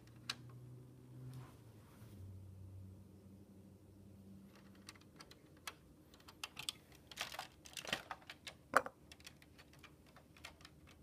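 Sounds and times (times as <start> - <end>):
plastic bricks clicking and rattling: 4.5 - 11.0.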